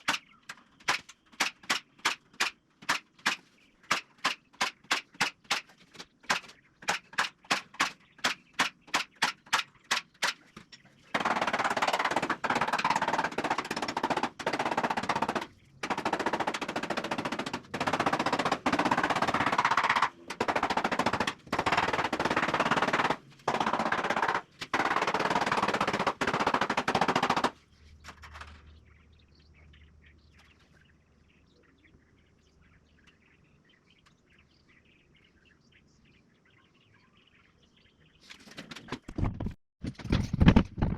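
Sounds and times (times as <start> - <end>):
sharp clicks: 0.0 - 10.5
power tool rattling on wood: 8.6 - 28.5
faint bird chirps: 27.6 - 39.1.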